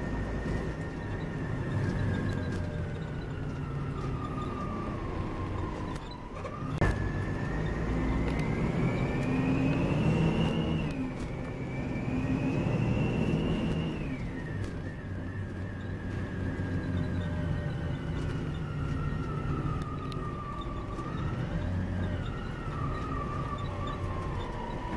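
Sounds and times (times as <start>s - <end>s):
diesel engine whining: 0.0s - 24.9s.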